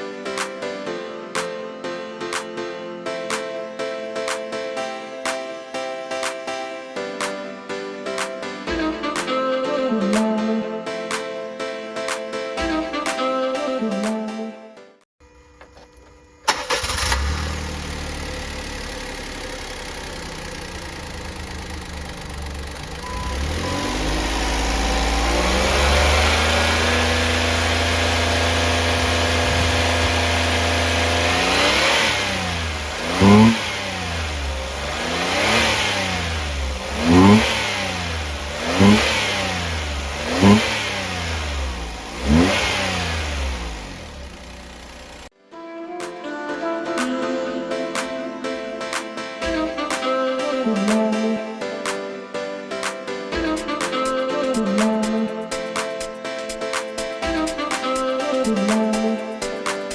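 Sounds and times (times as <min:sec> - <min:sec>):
car engine starting and revving: 0:15.7 - 0:45.3.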